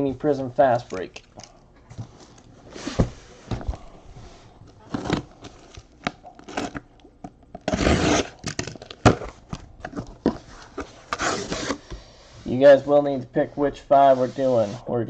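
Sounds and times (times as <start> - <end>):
card boxes being handled: 0.7 - 12.8
rustling scrape: 13.9 - 14.9.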